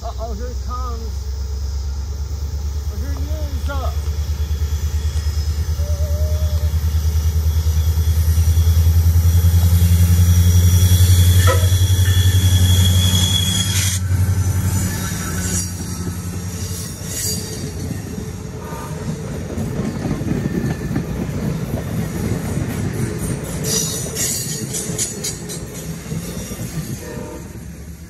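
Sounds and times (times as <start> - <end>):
train wheel noise: 0.1 - 28.0
wheel squeal: 4.1 - 21.4.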